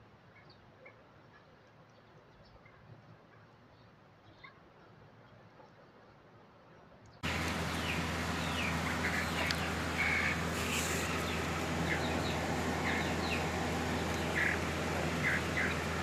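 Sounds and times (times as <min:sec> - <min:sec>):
downward-sliding bird calls: 0:07.2 - 0:16.0
high bird chirps: 0:07.2 - 0:16.0
low hum: 0:07.2 - 0:16.0
steady hiss: 0:07.2 - 0:16.0.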